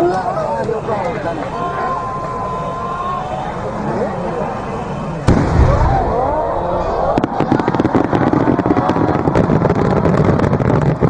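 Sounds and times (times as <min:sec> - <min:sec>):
fireworks crackling: 0:04.5 - 0:11.0.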